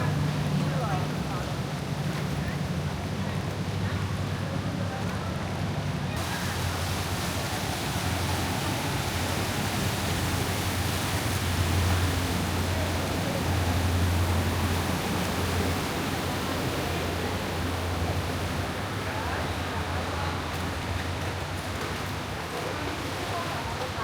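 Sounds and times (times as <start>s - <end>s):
road and engine noise in car: 6.2s - 21.2s.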